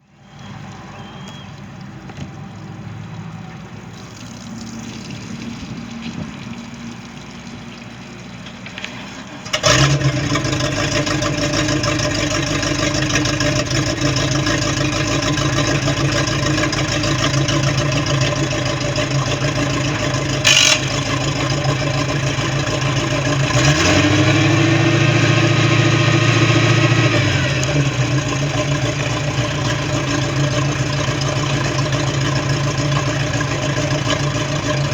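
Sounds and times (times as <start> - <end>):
boat engine idling and revving: 0.0 - 34.9
sharp click: 20.5 - 20.9.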